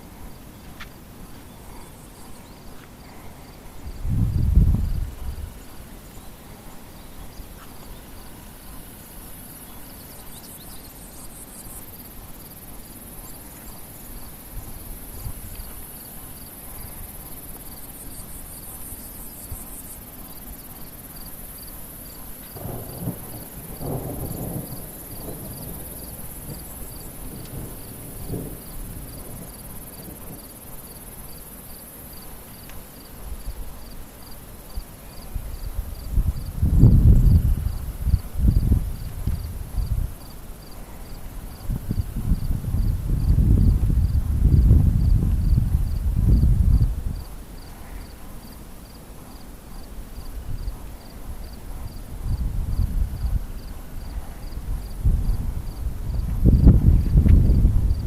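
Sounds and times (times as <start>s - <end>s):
crickets chirping: 0.0s - 58.0s
thunder rumbling: 3.8s - 5.7s, 22.5s - 30.9s, 35.5s - 40.3s, 41.6s - 47.3s, 51.8s - 58.0s.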